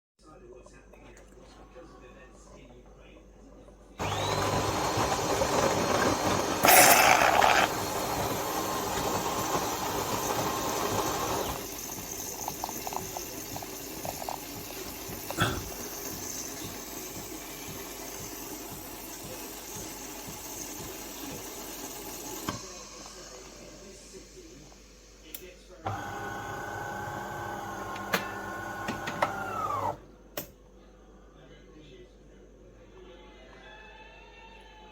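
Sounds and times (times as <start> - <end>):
coffee machine pump and steam hissing: 4.0 - 30.0.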